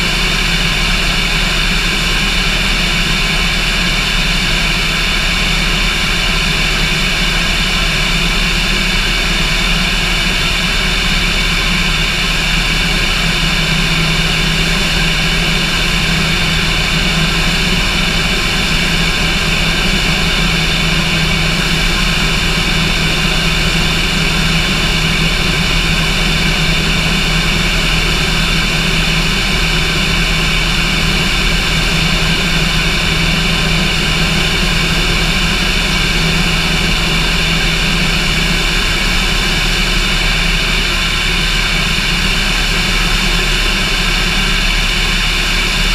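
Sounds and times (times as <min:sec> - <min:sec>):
light aircraft engine droning: 0:00.0 - 0:45.9.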